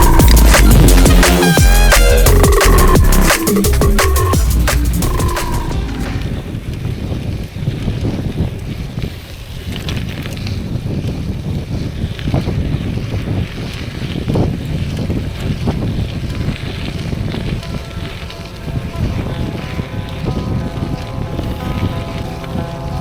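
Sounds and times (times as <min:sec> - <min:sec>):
music track: 0:00.0 - 0:06.7, 0:17.6 - 0:23.0
wind buffeting microphone: 0:05.8 - 0:23.0.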